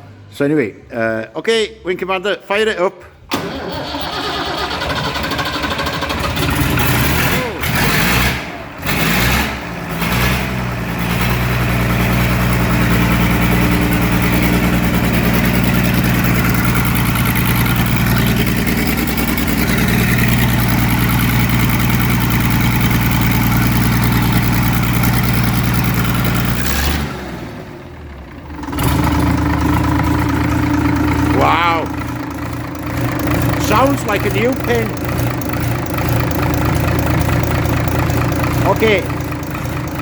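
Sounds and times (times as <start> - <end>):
tractor engine running: 3.2 - 40.0.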